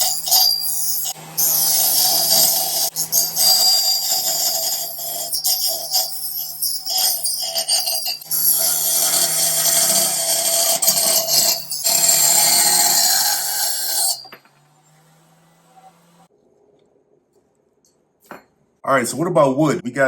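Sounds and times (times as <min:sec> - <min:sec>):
saw blade screeching through metal: 0:00.0 - 0:16.2
rotary tool motor hum: 0:00.0 - 0:16.3.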